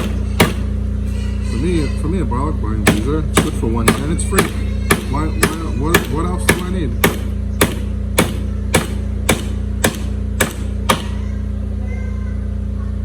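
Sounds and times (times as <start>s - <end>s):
hammer blows: 0.0s - 0.8s, 2.8s - 11.3s
steady low hum: 0.0s - 13.0s.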